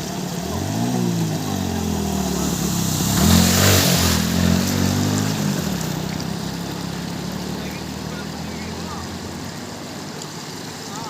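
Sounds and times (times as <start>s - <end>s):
vehicle engine revving: 0.0s - 11.0s
rushing hiss: 0.1s - 8.2s.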